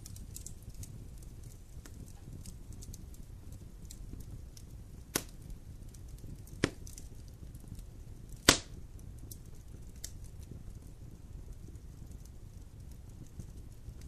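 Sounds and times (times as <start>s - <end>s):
campfire crackling: 0.0s - 14.0s
sharp pops of burning wood: 0.0s - 14.0s.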